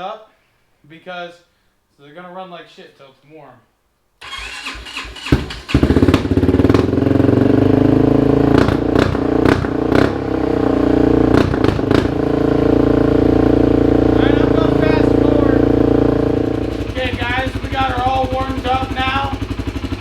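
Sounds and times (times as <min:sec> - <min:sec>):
engine cranking: 0:04.2 - 0:06.9
engine running loud: 0:05.3 - 0:20.0
exhaust pops: 0:05.3 - 0:20.0.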